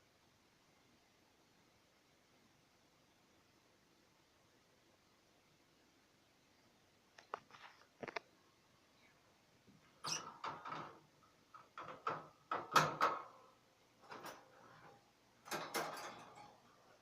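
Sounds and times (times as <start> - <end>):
objects knocking and rattling: 11.6 - 17.0.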